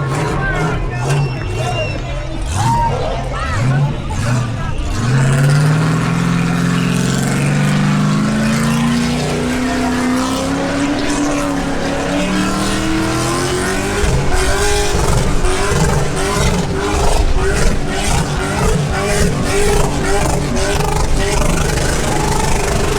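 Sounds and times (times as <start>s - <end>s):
car engine revving: 0.0s - 22.9s.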